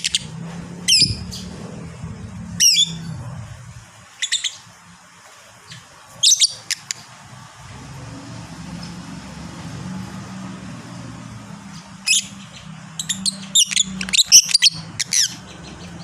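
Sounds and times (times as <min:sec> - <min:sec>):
steady low hum: 0:00.0 - 0:05.1
lovebird shrill chirps: 0:04.2 - 0:04.6, 0:06.2 - 0:06.8, 0:13.0 - 0:15.4.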